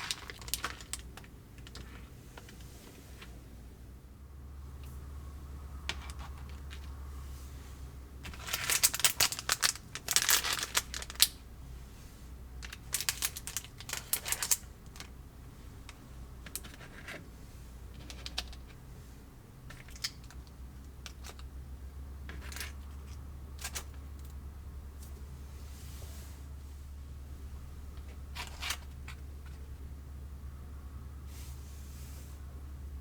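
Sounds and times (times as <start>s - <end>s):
plastic packaging crinkling and tearing: 0.0s - 1.8s, 8.3s - 11.4s, 12.7s - 14.7s.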